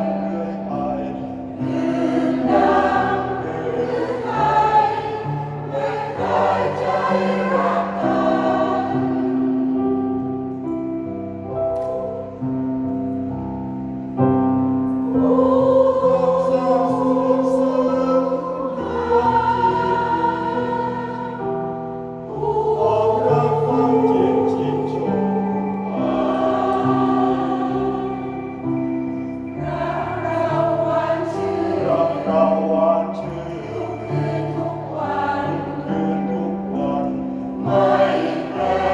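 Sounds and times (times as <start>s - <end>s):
choir singing in harmony: 0.0s - 38.9s.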